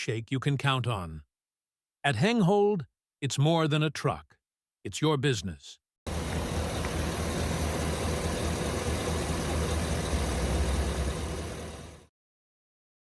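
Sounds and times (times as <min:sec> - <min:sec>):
pickup truck engine idling: 0:06.1 - 0:12.0.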